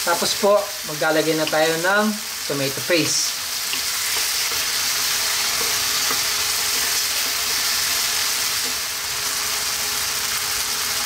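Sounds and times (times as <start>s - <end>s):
vegetables sizzling in oil: 0.0s - 11.0s
wooden spatula scraping wok: 2.8s - 9.2s.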